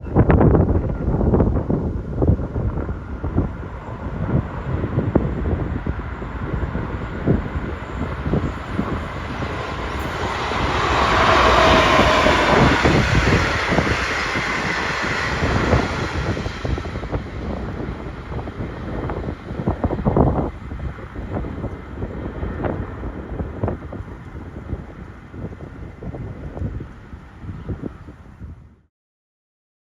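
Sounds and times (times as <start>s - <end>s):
wind buffeting microphone: 0.0s - 28.8s
train passing on rails: 0.2s - 28.2s.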